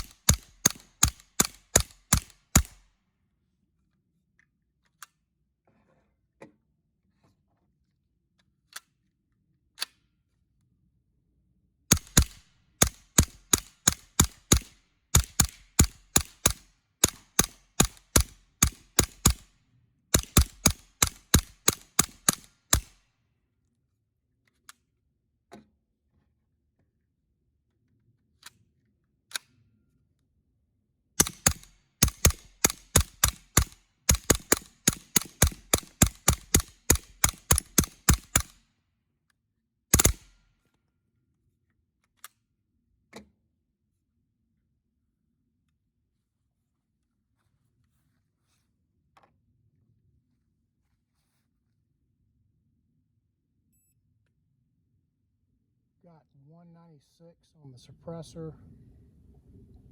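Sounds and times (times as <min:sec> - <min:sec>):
suppressed gunshots: 0:00.0 - 0:02.8, 0:11.9 - 0:19.5, 0:20.1 - 0:23.0, 0:31.2 - 0:38.6, 0:39.9 - 0:40.4.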